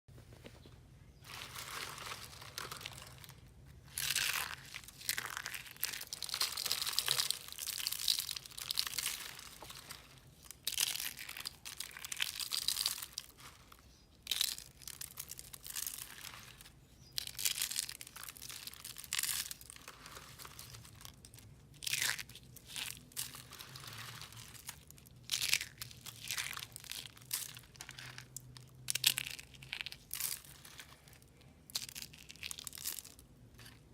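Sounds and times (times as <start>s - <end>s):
dry soap crunching: 0.6s - 33.9s.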